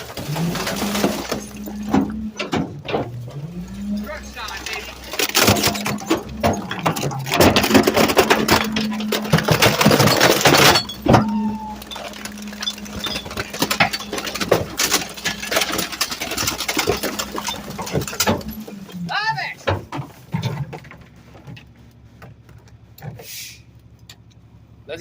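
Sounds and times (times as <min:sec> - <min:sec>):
trash cracking and crunching: 0:00.0 - 0:23.2
hydraulic hum: 0:00.0 - 0:23.9.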